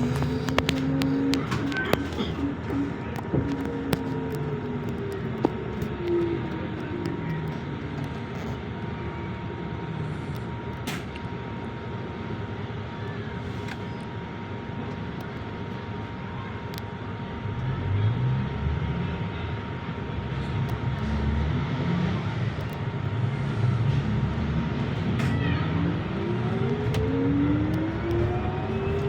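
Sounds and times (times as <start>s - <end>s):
vehicle pulling away whine: 0.0s - 8.0s, 17.5s - 29.0s
bus engine running: 0.0s - 29.0s
traffic noise: 0.0s - 29.0s.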